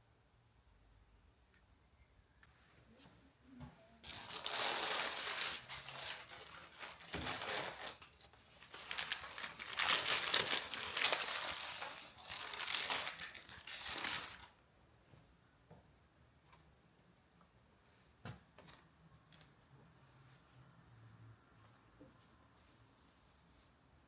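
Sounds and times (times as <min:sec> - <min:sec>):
wrapping crumpled and rustling: 0:04.0 - 0:14.6.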